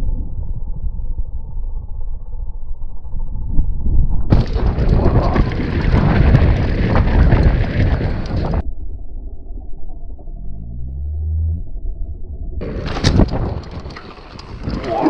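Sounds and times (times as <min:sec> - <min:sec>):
wind buffeting microphone: 0:03.2 - 0:08.6, 0:12.6 - 0:15.0
bike knocks and rattles: 0:12.6 - 0:15.0.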